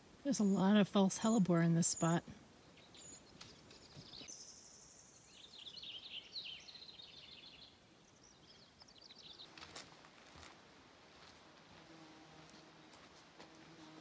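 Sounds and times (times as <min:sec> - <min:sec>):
songbird chirping: 0:00.0 - 0:10.6.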